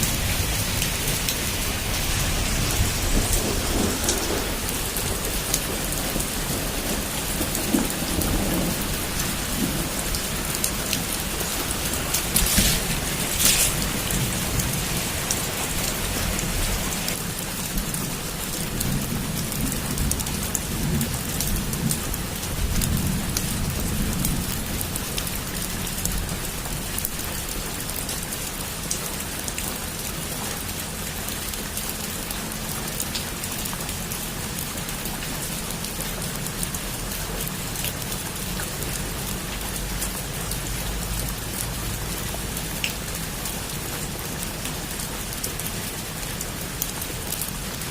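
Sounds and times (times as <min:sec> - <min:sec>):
thunder rumbling: 0:00.0 - 0:17.2
heavy rain falling: 0:00.0 - 0:47.9.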